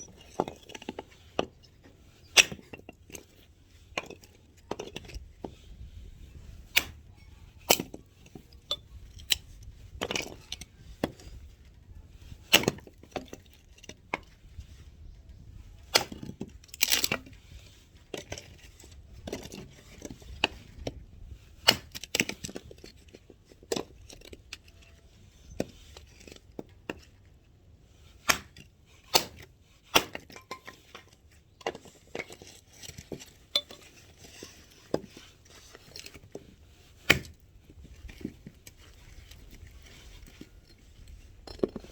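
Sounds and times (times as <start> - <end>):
axe chopping firewood: 2.4 - 3.2, 6.7 - 7.0, 7.6 - 8.1, 12.4 - 13.3, 15.8 - 17.3, 21.6 - 22.8, 28.2 - 30.9, 36.9 - 37.4.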